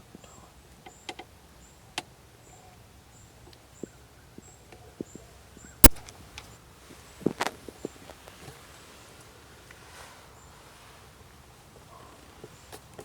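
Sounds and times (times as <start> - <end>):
rifle shot: 5.8 - 6.1.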